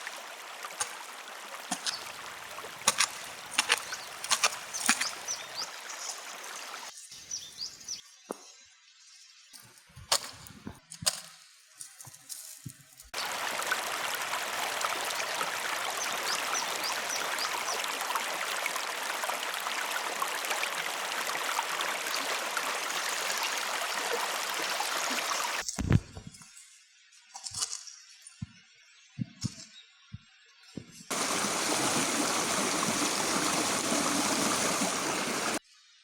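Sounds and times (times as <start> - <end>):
river water rushing: 0.0 - 6.9, 13.2 - 25.6, 31.1 - 35.6.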